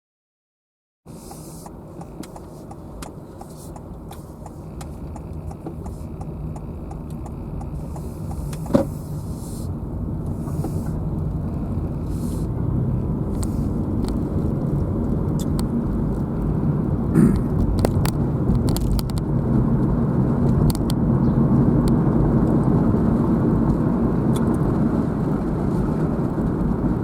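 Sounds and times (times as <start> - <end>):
car engine and road noise: 1.1 - 27.0
light regular ticking: 1.2 - 9.4.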